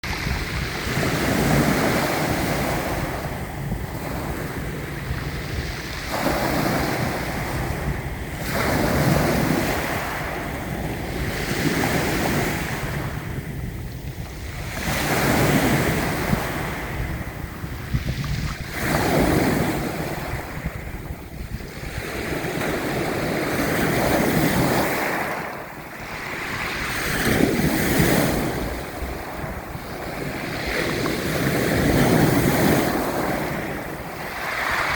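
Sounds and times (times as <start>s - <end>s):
sea waves breaking: 0.0s - 34.9s
wind buffeting microphone: 0.0s - 34.9s.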